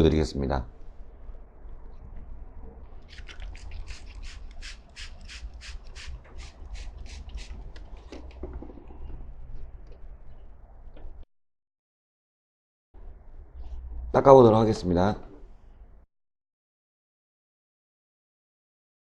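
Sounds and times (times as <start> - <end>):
spray bottle hissing sprays: 3.1 - 7.7.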